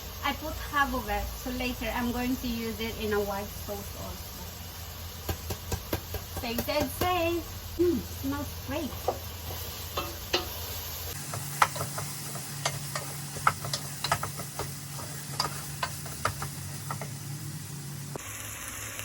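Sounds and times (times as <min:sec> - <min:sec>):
sauce sizzling: 0:00.0 - 0:19.0
utensil scraping a pan: 0:08.9 - 0:17.2.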